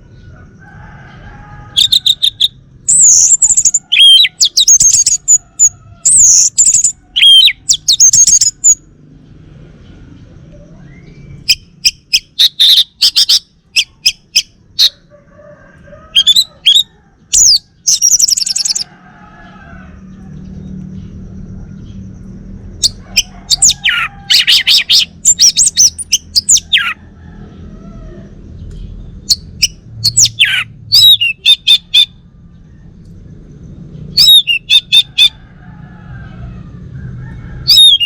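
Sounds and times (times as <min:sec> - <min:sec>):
thrush singing whistled trills: 0:01.7 - 0:08.9, 0:10.6 - 0:15.0, 0:16.1 - 0:18.9, 0:22.8 - 0:27.0, 0:29.2 - 0:32.2, 0:34.1 - 0:35.4, 0:37.6 - 0:38.0.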